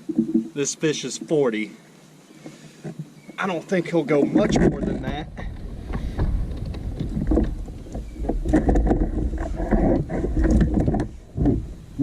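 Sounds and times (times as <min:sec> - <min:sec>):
knocks and bumps on kayak: 0:04.4 - 0:12.0
low rumble: 0:04.9 - 0:11.9.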